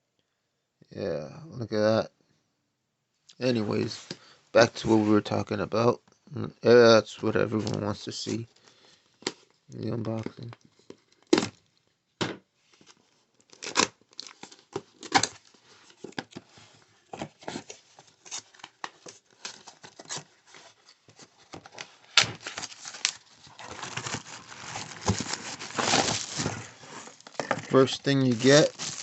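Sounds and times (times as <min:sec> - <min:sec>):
packaging crinkling and rustling: 0:12.7 - 0:29.0
cardboard being cut and torn: 0:22.1 - 0:29.0.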